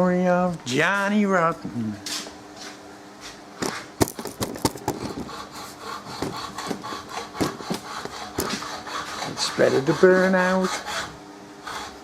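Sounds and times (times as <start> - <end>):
faint steady hum: 0.0 - 12.0
hand tool scraping workpiece: 4.8 - 12.0.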